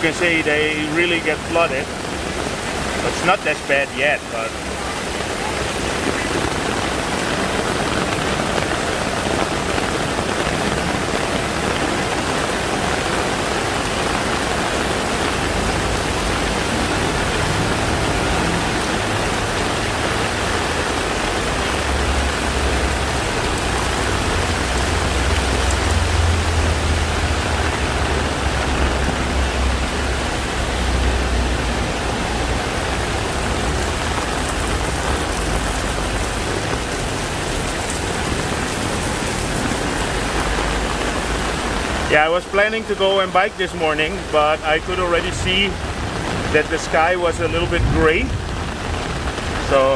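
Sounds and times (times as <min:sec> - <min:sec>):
heavy rain pouring: 0:00.0 - 0:49.9
low rumble: 0:47.3 - 0:49.7.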